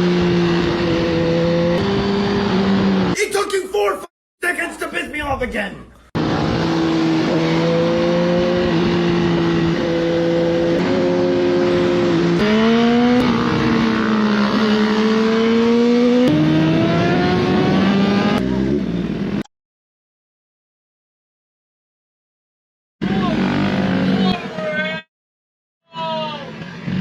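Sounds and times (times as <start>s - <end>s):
motorcycle engine accelerating: 0.0s - 3.2s, 6.2s - 19.4s, 23.0s - 24.6s
wind and road noise: 0.0s - 3.2s, 6.2s - 19.4s.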